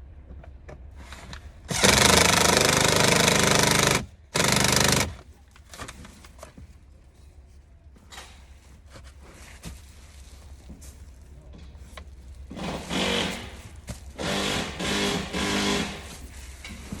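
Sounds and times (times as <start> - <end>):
power tool hammering rattle: 1.7 - 5.2, 12.5 - 16.3.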